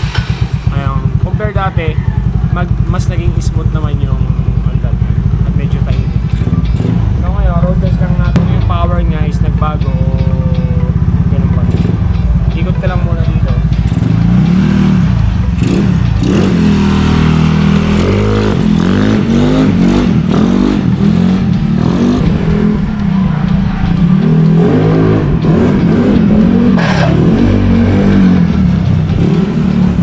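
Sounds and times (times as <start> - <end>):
scooter engine revving: 0.0 - 30.0.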